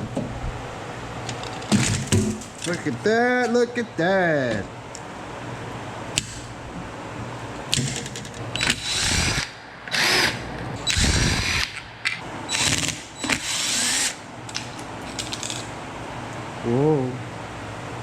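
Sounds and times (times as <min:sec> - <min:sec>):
power drill running: 0:08.6 - 0:11.8, 0:12.5 - 0:14.2.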